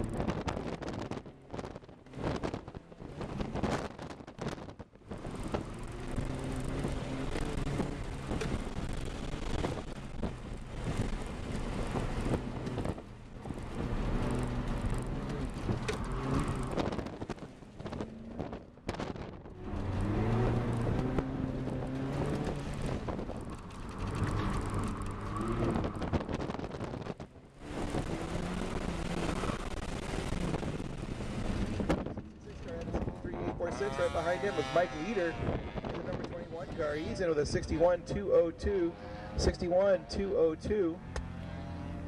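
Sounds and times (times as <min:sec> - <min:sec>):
car engine accelerating: 0:00.0 - 0:42.0
wind buffeting microphone: 0:14.8 - 0:33.9, 0:35.2 - 0:37.2.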